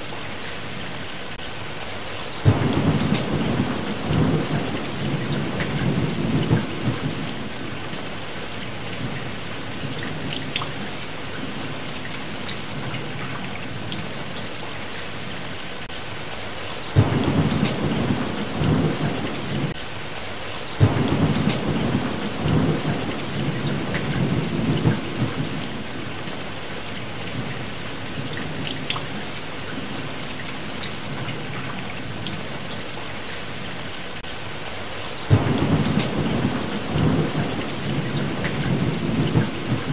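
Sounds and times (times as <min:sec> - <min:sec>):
heavy rain falling: 0:00.0 - 0:39.9
rolling thunder: 0:02.4 - 0:07.5, 0:17.0 - 0:19.8, 0:20.8 - 0:26.2, 0:35.3 - 0:39.9.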